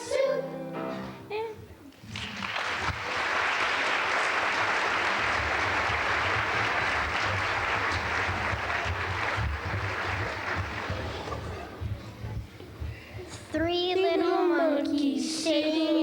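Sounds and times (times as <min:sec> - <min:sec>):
audience applauding: 0:02.0 - 0:12.2.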